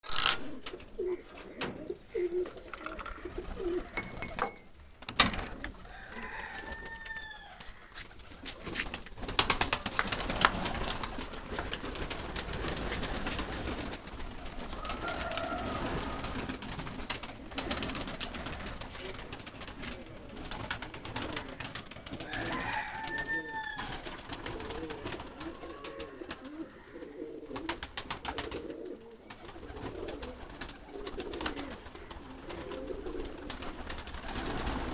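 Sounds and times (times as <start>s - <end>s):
pigeons cooing: 0.1s - 34.9s.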